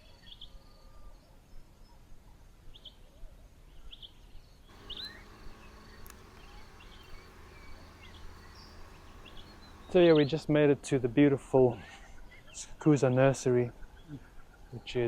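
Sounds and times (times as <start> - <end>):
high bird chirps: 4.7 - 10.0
faint steady hum: 4.7 - 10.2.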